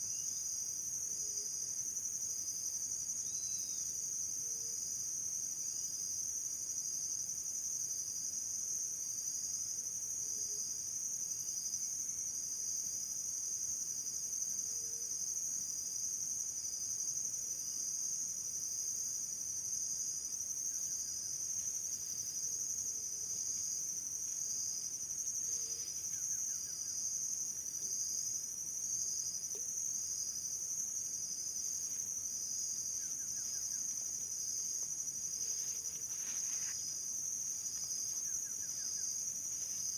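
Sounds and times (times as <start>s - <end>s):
lower pulsing insect trill: 0.0s - 39.9s
high insect trill: 11.1s - 39.9s.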